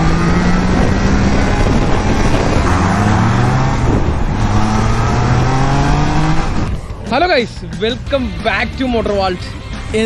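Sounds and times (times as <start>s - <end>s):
motorcycle engine accelerating: 0.0s - 6.9s.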